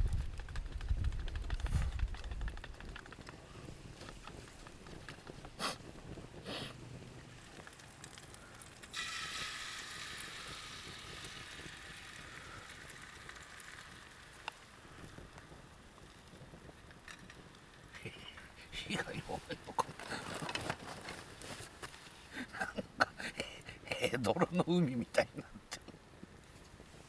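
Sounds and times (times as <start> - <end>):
food sizzling in hot pan: 7.2 - 19.8.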